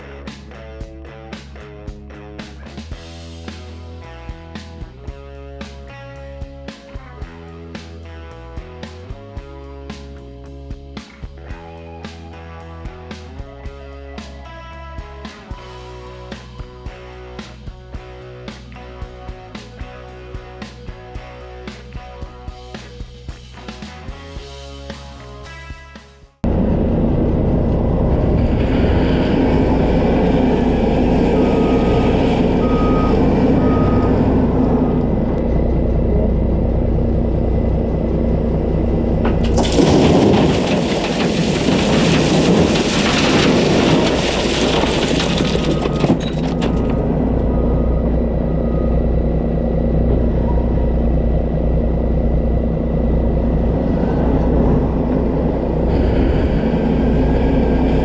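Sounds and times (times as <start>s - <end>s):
diesel engine running: 26.4s - 58.0s
backup alarm beeping: 31.3s - 35.1s, 45.6s - 51.3s
loud rushing scraping noise: 53.6s - 58.0s.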